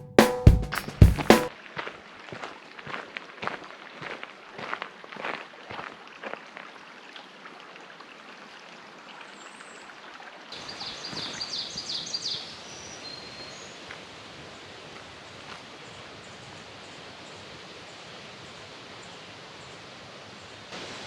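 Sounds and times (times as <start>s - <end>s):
footsteps on trail: 1.8s - 5.4s
woodland ambience hiss: 10.6s - 21.0s.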